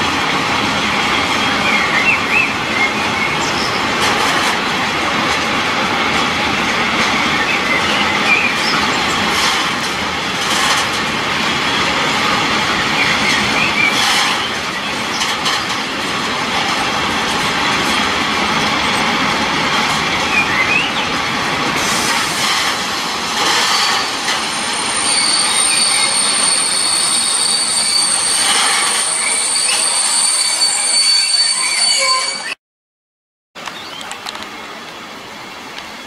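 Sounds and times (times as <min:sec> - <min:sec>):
train wheels rumbling on rail: 0:00.0 - 0:32.5
clacks over rail joints: 0:03.3 - 0:20.4, 0:21.1 - 0:24.5
wheel squeaks: 0:23.6 - 0:32.6
high-pitched wheel squeal: 0:24.4 - 0:32.6.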